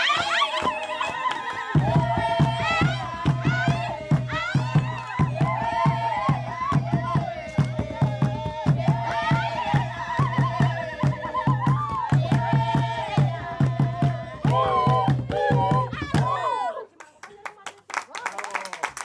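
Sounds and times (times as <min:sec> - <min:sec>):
fast steady drumbeat: 0:00.0 - 0:16.6
group of voices singing: 0:00.0 - 0:16.9.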